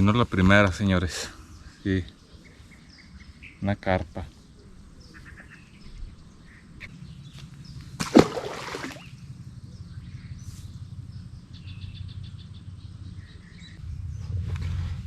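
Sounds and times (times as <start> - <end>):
low outdoor rumble: 4.0 - 15.0.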